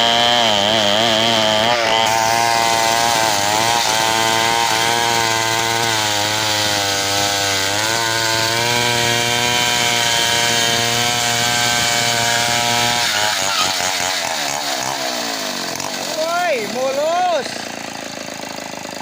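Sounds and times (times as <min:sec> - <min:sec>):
chainsaw cutting log: 0:00.0 - 0:19.0.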